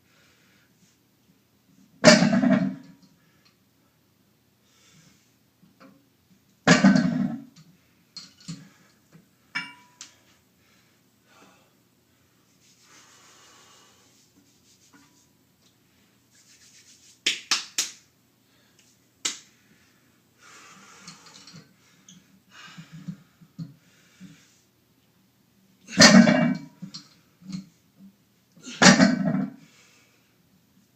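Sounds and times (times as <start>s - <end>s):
man breathing hard: 10.2s - 14.2s, 18.4s - 24.7s.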